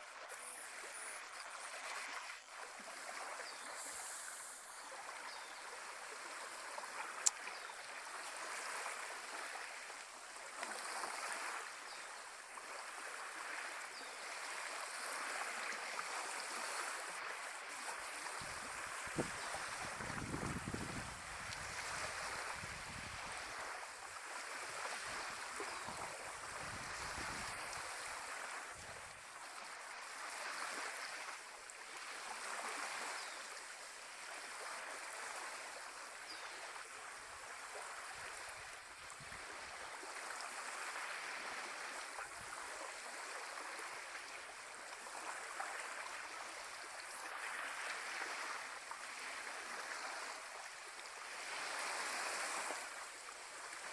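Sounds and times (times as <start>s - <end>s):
small waves washing on shore: 0.0s - 53.9s
wind buffeting microphone: 18.4s - 23.5s.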